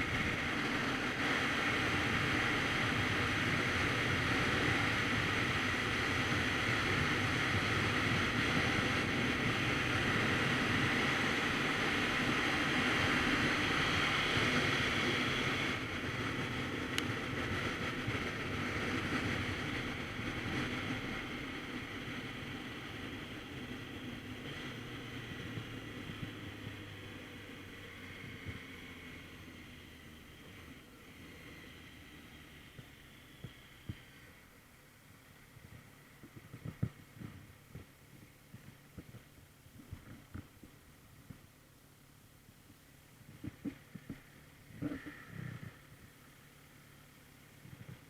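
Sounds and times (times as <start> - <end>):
wind rushing over microphone: 0.0 - 29.0
motorcycle engine running: 0.0 - 48.0.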